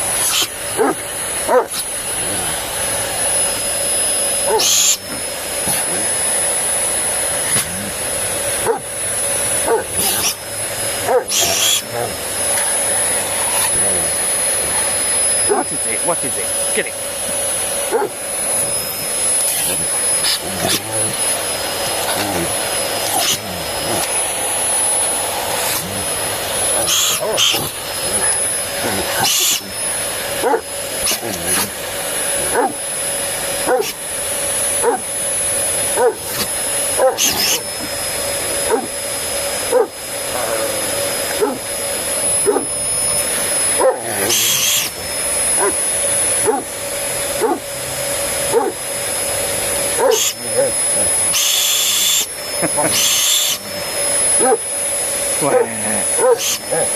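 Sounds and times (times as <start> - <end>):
vacuum cleaner running: 0.0 - 56.9
dog yipping: 0.2 - 1.8, 4.5 - 5.0, 8.6 - 8.8, 9.7 - 10.4, 11.1 - 11.8, 17.9 - 18.2, 26.8 - 28.4, 32.5 - 32.8, 33.7 - 34.0, 34.8 - 35.1, 36.0 - 36.4, 37.0 - 37.6, 38.7 - 38.9, 39.7 - 39.9, 42.4 - 42.7, 45.6 - 45.8, 46.4 - 46.7, 50.0 - 50.4, 56.2 - 56.6
dog yelping: 0.2 - 2.7, 4.4 - 5.1, 8.6 - 9.0, 9.6 - 10.4, 11.0 - 13.8, 14.6 - 15.8, 17.8 - 24.3, 25.5 - 31.7, 32.4 - 32.9, 33.6 - 34.0, 34.8 - 35.2, 35.9 - 38.0, 38.6 - 39.0, 39.7 - 40.0, 41.3 - 41.7, 42.3 - 42.9, 43.6 - 46.8, 47.4 - 47.7, 48.5 - 48.8, 49.9 - 50.4, 54.3 - 54.7, 55.5 - 56.9.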